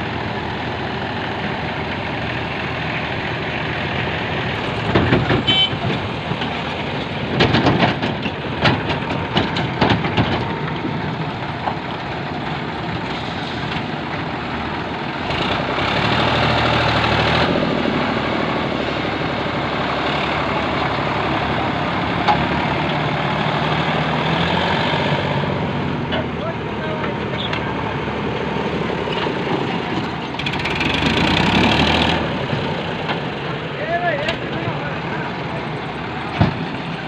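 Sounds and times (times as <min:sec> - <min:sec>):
heavy diesel machinery running: 0:00.0 - 0:37.0
metal clanks and knocks: 0:04.7 - 0:11.9.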